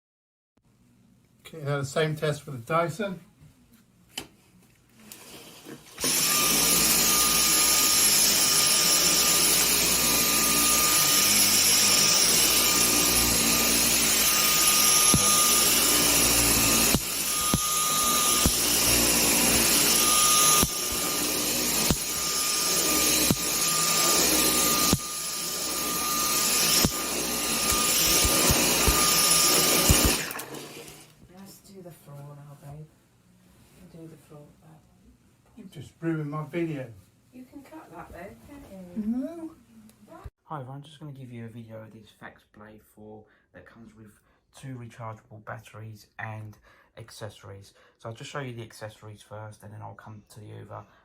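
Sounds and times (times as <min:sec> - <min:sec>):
vacuum cleaner whining: 0:05.0 - 0:31.2.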